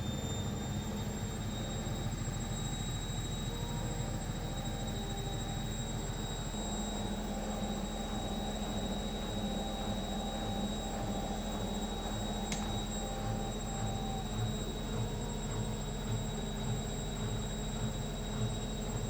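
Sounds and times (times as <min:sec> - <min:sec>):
washing machine motor hum: 0:00.5 - 0:19.0
faint tick: 0:12.5 - 0:12.7.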